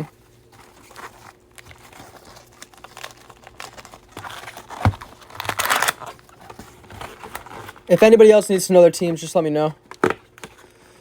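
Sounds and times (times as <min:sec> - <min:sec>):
crinkly material rustling: 0:00.0 - 0:08.5.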